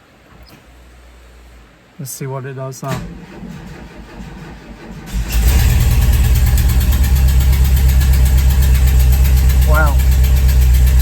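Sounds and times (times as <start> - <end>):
van engine cranking and running: 2.9 - 11.0.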